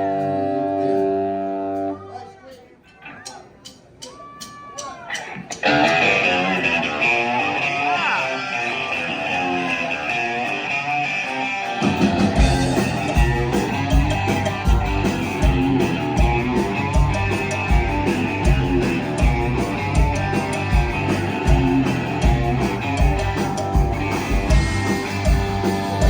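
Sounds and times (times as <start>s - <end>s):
electric guitar riff: 0.0s - 2.2s, 5.2s - 26.0s
bass and drums: 11.8s - 26.0s.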